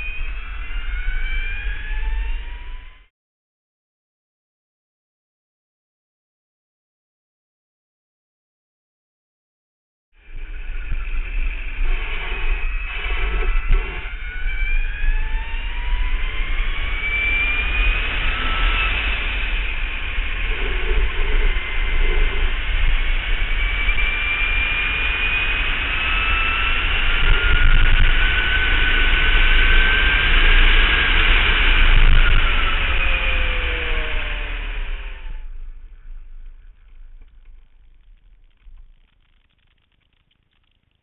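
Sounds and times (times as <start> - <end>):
electric motorcycle motor whine: 0.0 - 3.1, 10.2 - 38.8
wind rushing: 10.3 - 36.9.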